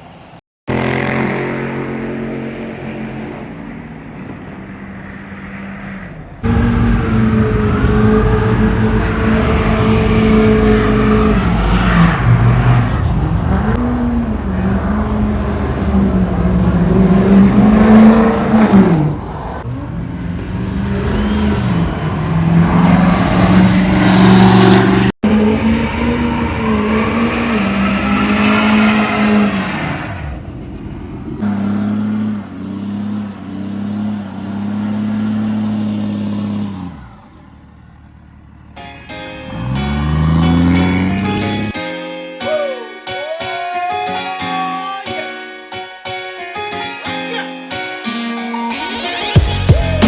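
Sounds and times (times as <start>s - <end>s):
car engine revving: 0.7s - 41.8s.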